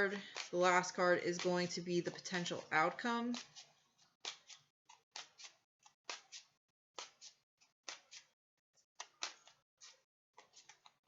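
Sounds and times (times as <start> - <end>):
cards being shuffled: 0.0 - 2.7, 3.3 - 8.4, 9.0 - 11.0.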